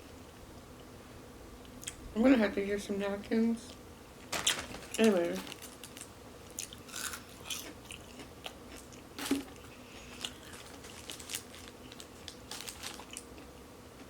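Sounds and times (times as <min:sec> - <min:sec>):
crunchy bites and chewing: 0:05.5 - 0:14.0.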